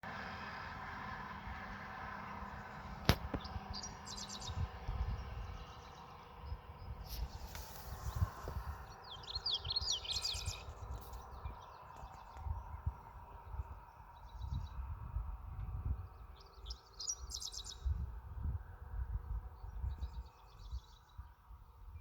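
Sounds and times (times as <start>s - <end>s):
small birds chirping: 2.2s - 18.2s, 19.3s - 22.0s
sharp click: 3.0s - 3.5s.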